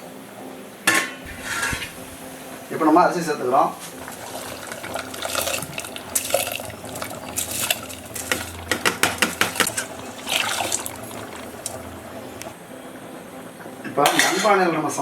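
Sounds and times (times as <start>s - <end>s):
wet swishing and splashing: 3.8s - 12.6s
utensil clinking against pot: 4.0s - 12.5s.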